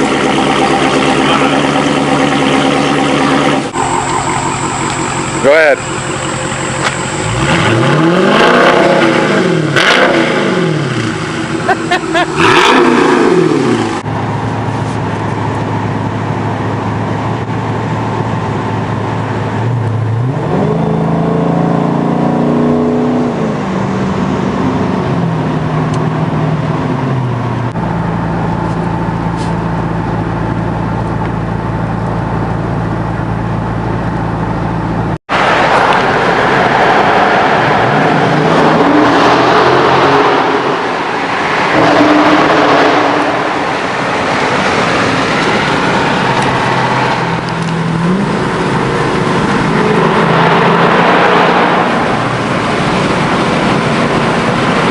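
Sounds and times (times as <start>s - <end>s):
car engine exhaust burble: 0.0s - 20.3s.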